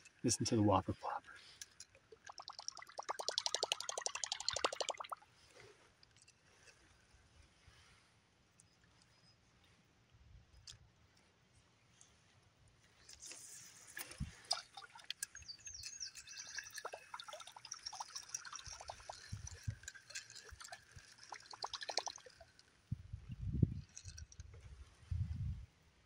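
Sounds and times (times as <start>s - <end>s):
lure plopping and splashing on water: 1.7s - 5.2s, 13.2s - 22.7s.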